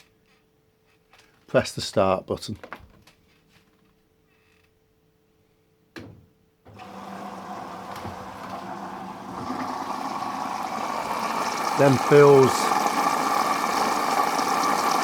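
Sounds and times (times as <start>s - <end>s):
water filling washing machine: 6.7s - 15.0s
washing machine clunk: 7.7s - 9.7s.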